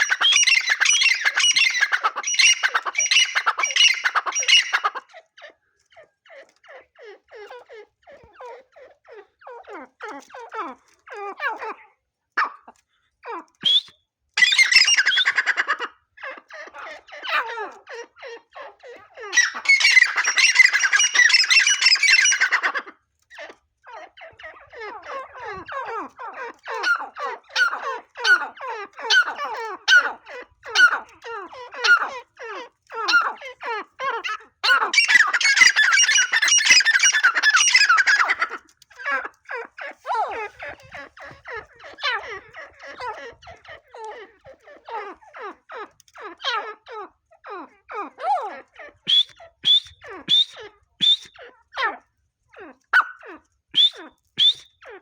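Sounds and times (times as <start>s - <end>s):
francolin calling: 0.0s - 5.0s, 19.3s - 22.7s, 34.6s - 38.5s, 49.1s - 51.3s
harsh bursts of bird calling: 19.4s - 22.6s.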